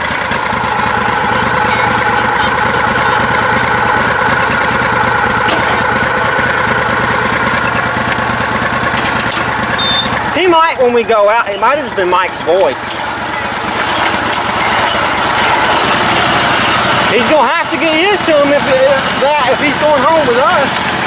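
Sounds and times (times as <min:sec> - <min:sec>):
lawn tractor engine running: 0:00.0 - 0:21.0.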